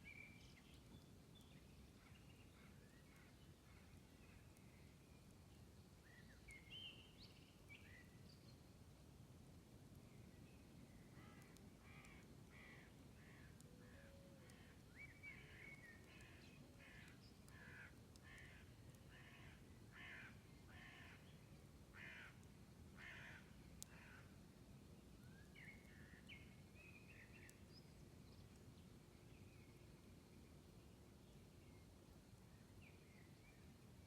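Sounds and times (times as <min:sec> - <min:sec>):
faint clicks: 0:11.2 - 0:13.7, 0:15.5 - 0:19.3
crow cawing: 0:22.0 - 0:22.4, 0:23.0 - 0:24.2.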